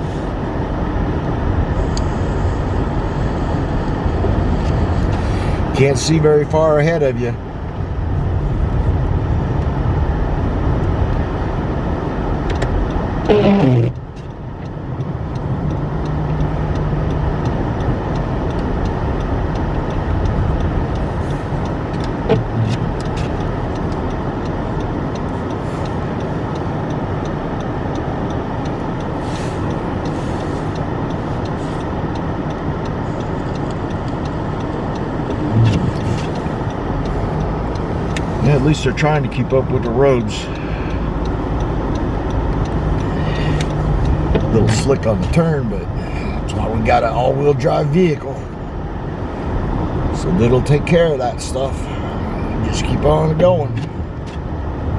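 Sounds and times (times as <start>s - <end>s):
car cabin road and engine noise: 0.0s - 54.9s
faint ticks: 12.5s - 45.4s
wavering pitched sound: 13.3s - 14.0s.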